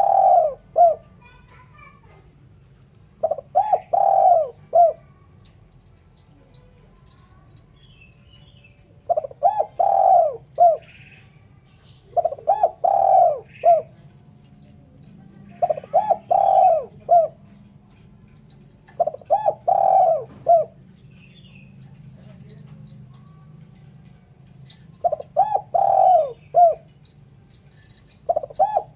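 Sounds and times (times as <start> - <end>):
dove cooing: 0.0 - 1.6, 3.1 - 5.3, 8.8 - 11.2, 12.1 - 28.9
small bird chirps: 18.9 - 23.9.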